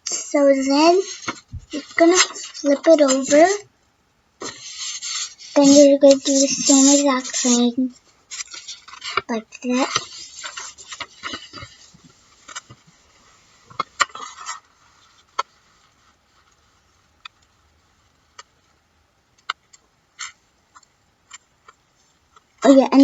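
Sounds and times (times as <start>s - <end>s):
paper rustling and creasing: 0.4s - 3.6s, 4.4s - 16.8s.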